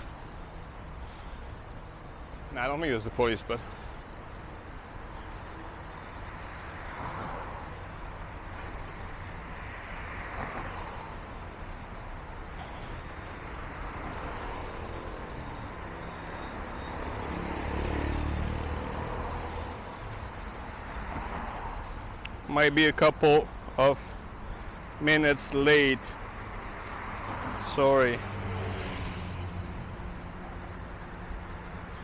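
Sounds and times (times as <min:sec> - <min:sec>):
road traffic: 0:00.0 - 0:32.0
vehicle passing close: 0:16.7 - 0:20.0.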